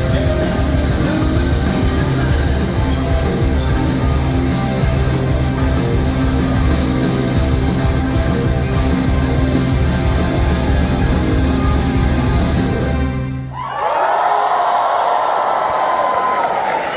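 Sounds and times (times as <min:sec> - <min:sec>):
rock band playing live: 0:00.0 - 0:13.5.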